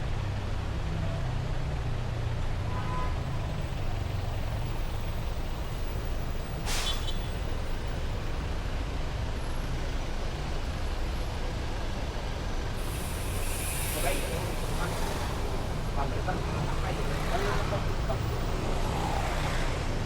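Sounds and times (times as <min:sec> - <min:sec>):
heavy road traffic rumbling: 0:00.0 - 0:20.0
short sharp hiss: 0:06.6 - 0:07.2, 0:12.8 - 0:15.6.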